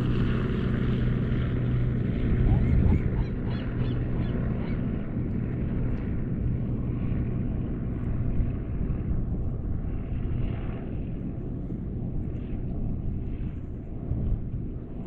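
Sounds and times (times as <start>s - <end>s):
low engine drone: 0.0s - 15.0s
gull calls: 2.3s - 4.9s.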